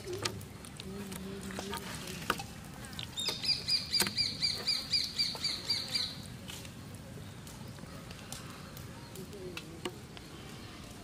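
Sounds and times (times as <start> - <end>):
bird chirping: 3.1 - 6.2.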